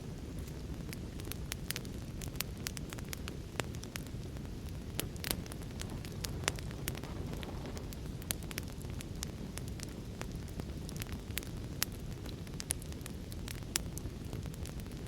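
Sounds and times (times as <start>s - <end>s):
low rumble of rain: 0.0s - 15.0s
wood fire crackling: 0.0s - 15.0s.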